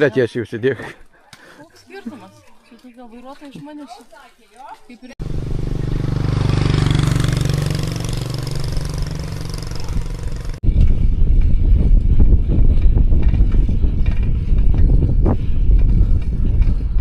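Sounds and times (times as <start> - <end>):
motor engine running: 5.2 - 11.8
wind buffeting microphone: 6.0 - 17.0
low rumble: 7.6 - 17.0.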